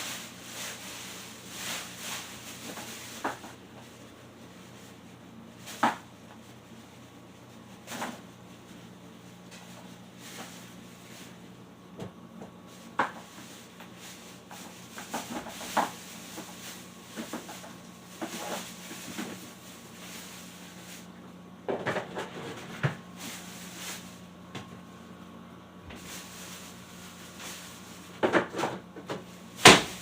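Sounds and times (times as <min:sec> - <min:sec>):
clatter of objects: 0:00.0 - 0:03.9, 0:05.6 - 0:06.4, 0:07.8 - 0:08.3, 0:12.9 - 0:21.1, 0:21.7 - 0:24.1, 0:27.3 - 0:30.0
steady low hum: 0:00.0 - 0:30.0.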